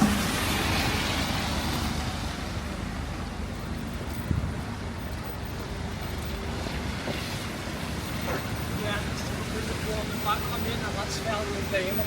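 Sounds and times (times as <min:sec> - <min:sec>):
short thump: 0:00.0 - 0:00.4
city street traffic rumble: 0:00.0 - 0:12.0
rain hiss: 0:00.0 - 0:12.0.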